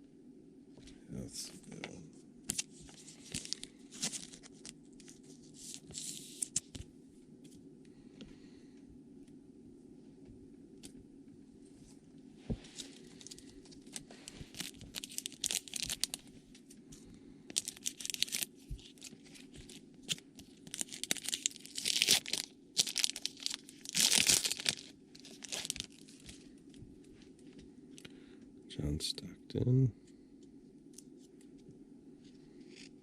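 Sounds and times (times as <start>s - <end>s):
wrapper being torn and crinkled: 2.5s - 6.8s, 13.1s - 16.3s, 17.5s - 26.4s.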